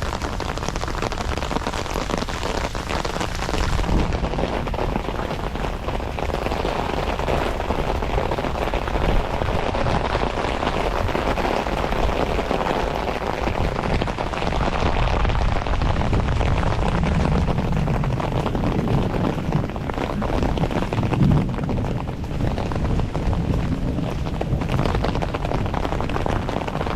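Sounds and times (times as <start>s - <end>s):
heavy rain on foliage: 0.0s - 26.9s
low rumble: 15.0s - 26.1s.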